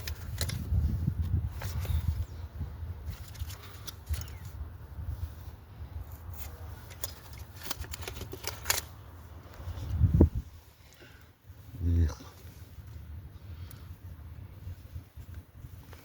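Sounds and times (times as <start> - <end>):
tools clicking and knocking: 0.0 - 0.7, 3.1 - 4.6, 6.4 - 9.0.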